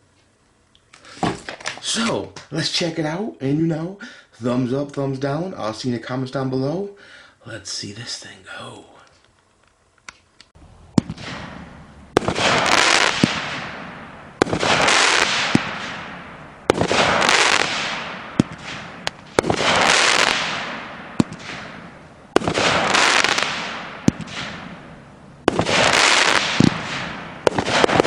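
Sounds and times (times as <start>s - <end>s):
firework launch pops: 1.2s - 1.8s, 11.0s - 24.8s, 25.4s - 28.0s
firework hiss: 11.0s - 24.7s, 25.4s - 28.0s
firework shell bangs: 25.4s - 28.0s.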